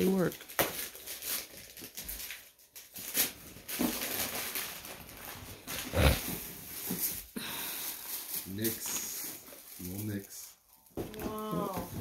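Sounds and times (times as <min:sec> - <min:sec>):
paper rustling and crinkling: 0:00.4 - 0:12.0.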